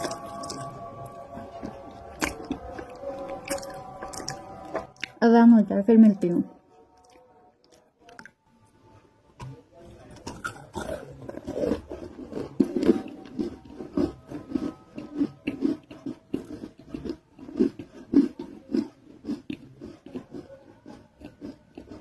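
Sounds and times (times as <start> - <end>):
crisp chewing crunches: 0.0 - 5.2, 10.0 - 22.0.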